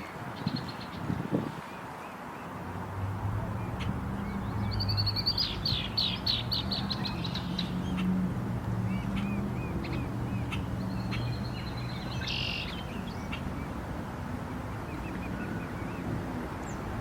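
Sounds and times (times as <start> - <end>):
birds chirping: 3.5 - 8.2, 8.8 - 13.8.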